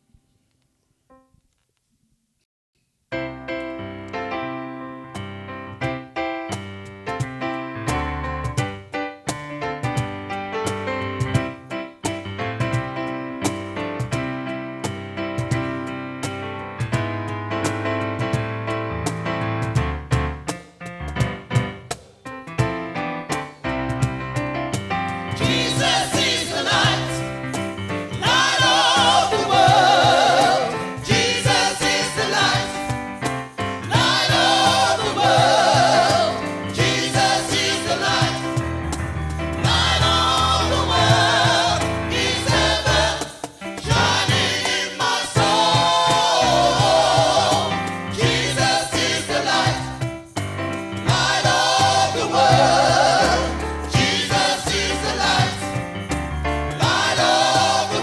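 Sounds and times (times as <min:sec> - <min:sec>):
instrumental backing with bass: 0:03.2 - 0:58.0
gospel choir singing: 0:25.2 - 0:58.0.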